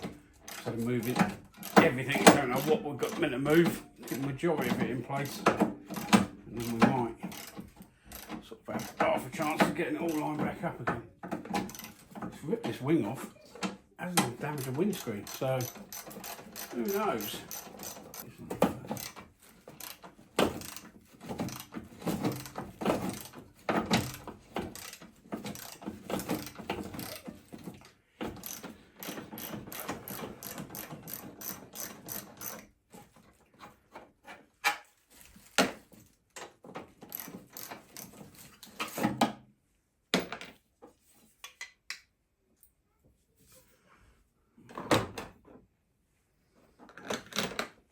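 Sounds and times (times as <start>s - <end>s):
ratchet spanner clicking: 14.6s - 18.2s.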